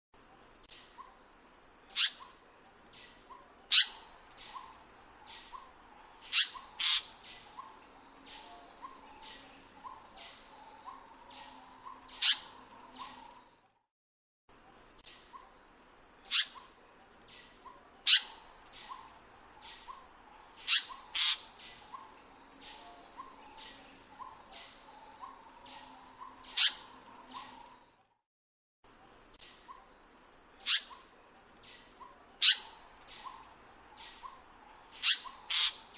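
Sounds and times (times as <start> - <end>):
bird sharp loud calls: 1.9 - 2.4, 3.7 - 4.7, 5.3 - 11.0, 11.8 - 13.2, 16.3 - 16.7, 18.0 - 27.6, 30.6 - 31.1, 32.0 - 35.9
faint high chirps: 1.9 - 13.7.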